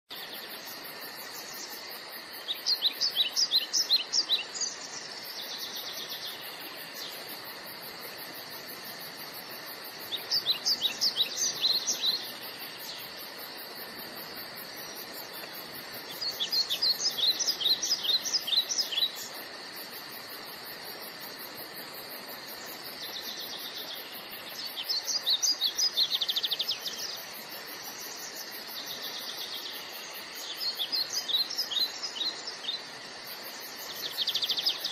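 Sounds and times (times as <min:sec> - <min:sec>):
songbird chirping: 0:00.1 - 0:34.9
steady background hiss: 0:00.1 - 0:34.9.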